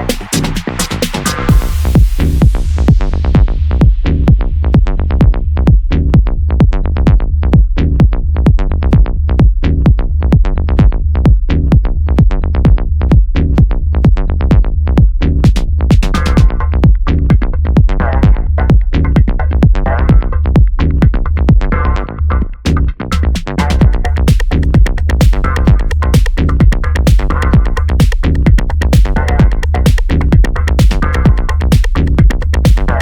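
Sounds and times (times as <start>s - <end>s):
electronic dance music: 0.0s - 4.3s, 15.4s - 20.4s, 23.1s - 33.0s.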